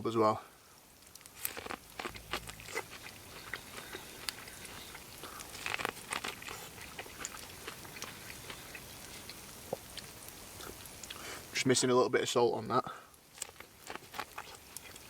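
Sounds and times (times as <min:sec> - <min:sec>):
person chewing corn on the cob: 0:00.9 - 0:11.5, 0:13.2 - 0:15.0
mouth clicks: 0:01.4 - 0:06.4.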